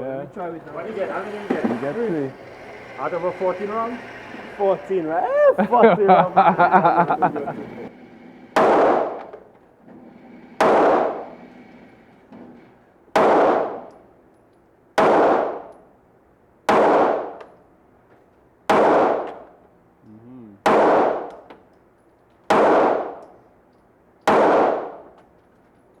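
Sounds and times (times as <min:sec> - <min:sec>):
pistol shots: 0:15.0 - 0:15.6, 0:24.3 - 0:25.0.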